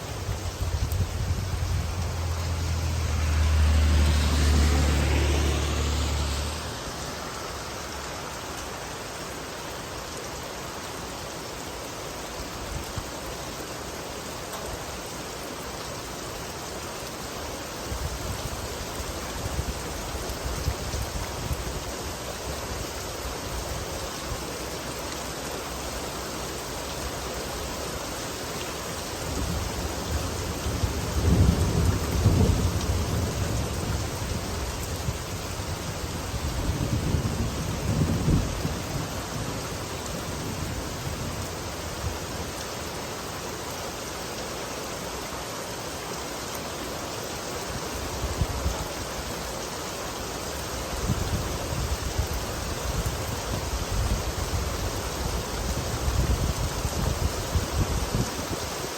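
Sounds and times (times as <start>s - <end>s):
car passing on wet road: 0.0s - 58.9s
steady rain falling: 0.0s - 58.9s
thunder rumbling: 30.5s - 39.5s.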